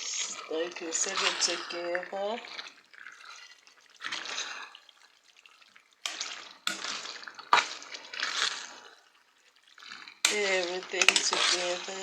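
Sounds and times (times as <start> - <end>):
spoon stirring thick sauce: 0.0 - 12.0.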